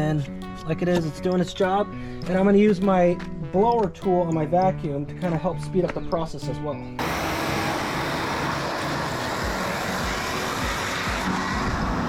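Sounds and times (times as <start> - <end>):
vacuum cleaner blowing air: 7.0 - 12.0.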